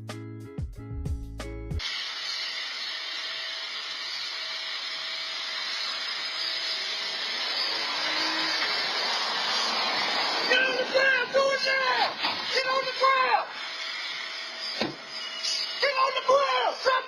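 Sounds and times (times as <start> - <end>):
water spraying from hose: 7.6 - 10.6.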